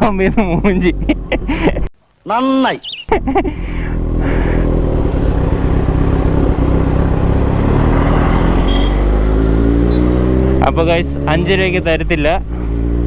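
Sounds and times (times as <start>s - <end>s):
motorcycle engine accelerating: 0.0s - 1.8s, 3.1s - 13.0s.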